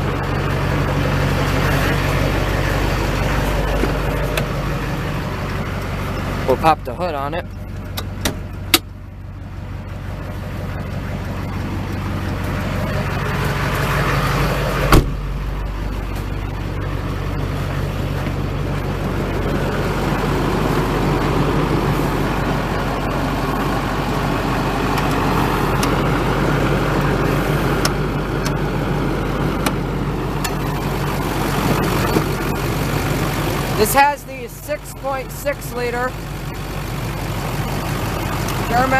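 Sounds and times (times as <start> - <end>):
diesel truck engine idling: 0.0 - 38.9
sharp clunk: 14.9 - 15.4.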